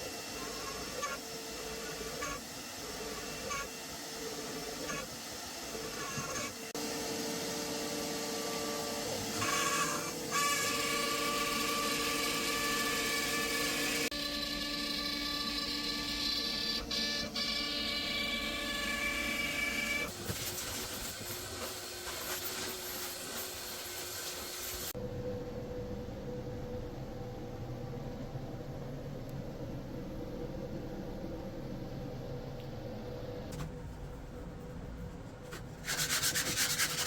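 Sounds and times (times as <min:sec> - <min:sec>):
router motor whine: 0:00.0 - 0:20.1.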